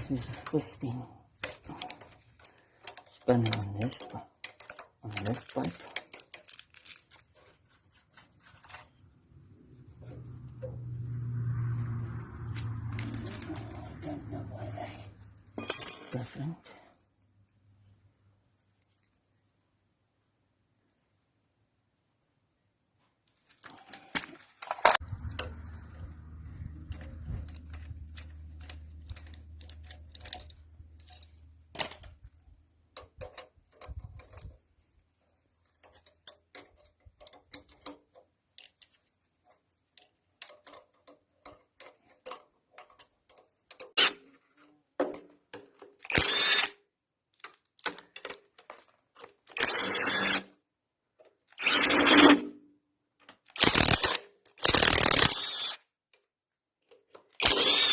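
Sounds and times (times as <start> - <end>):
metal tools clicking and tapping: 0.0 - 7.6, 15.6 - 16.6, 35.8 - 39.0, 39.9 - 44.0
power tool bursts: 46.1 - 46.7, 53.6 - 55.8, 57.4 - 57.9.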